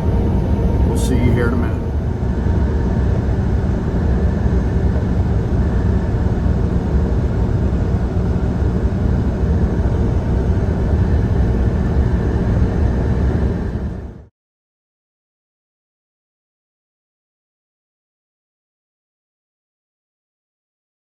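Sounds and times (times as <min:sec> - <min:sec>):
truck engine rumble: 0:00.0 - 0:14.2.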